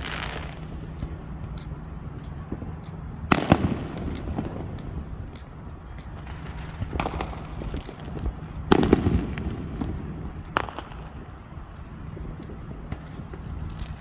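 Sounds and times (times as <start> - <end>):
sharp firework crack: 0.0 - 11.6
fireworks popping and crackling: 0.0 - 14.0
low rumble: 0.0 - 14.0
firework bang: 3.3 - 4.8, 6.3 - 11.2.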